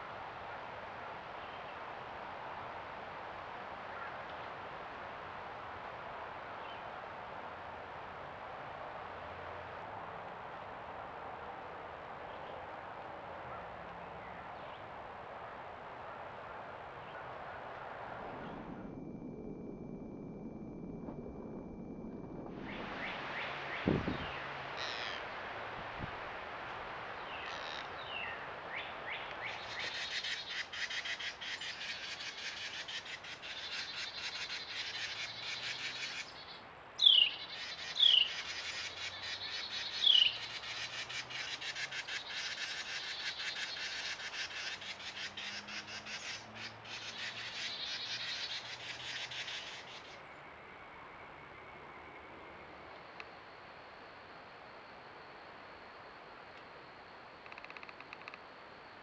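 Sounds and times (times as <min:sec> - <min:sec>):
birds chirping: 0:22.6 - 0:25.4, 0:27.1 - 0:50.5.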